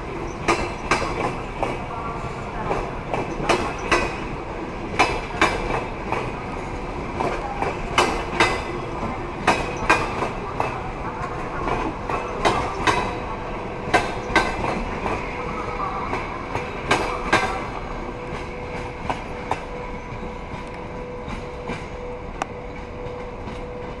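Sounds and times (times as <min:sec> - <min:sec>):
train wheels clacking over rail joints: 0:00.1 - 0:01.9, 0:02.5 - 0:15.4, 0:16.1 - 0:22.0.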